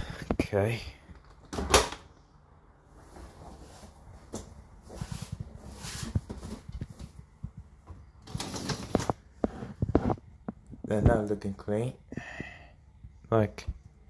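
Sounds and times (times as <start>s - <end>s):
dishwasher rack sliding scrape: 8.3s - 9.1s.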